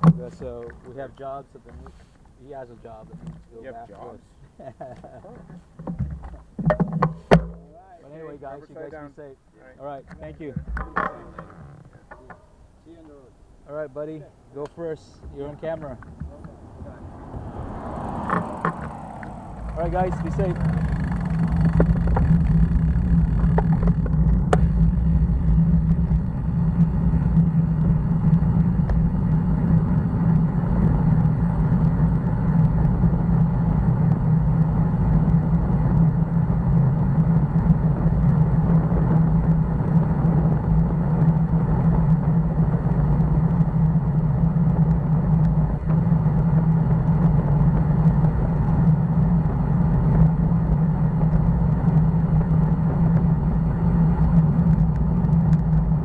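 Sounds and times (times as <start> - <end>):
road noise: 0.0 - 56.0.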